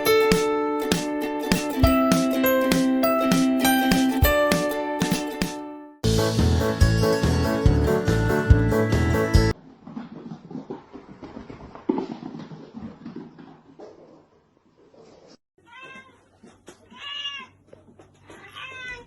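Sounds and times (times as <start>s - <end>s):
cat meowing: 15.6s - 16.2s, 16.9s - 17.6s, 18.3s - 19.0s.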